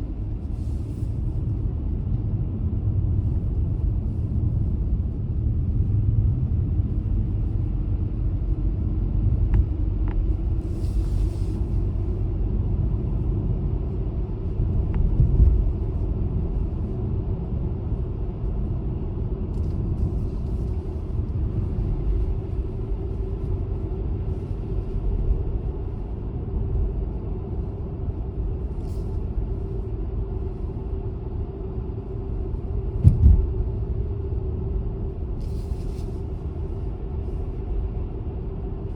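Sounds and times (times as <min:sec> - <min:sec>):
car road and engine rumble: 0:00.0 - 0:38.9
short thumps: 0:33.0 - 0:33.5.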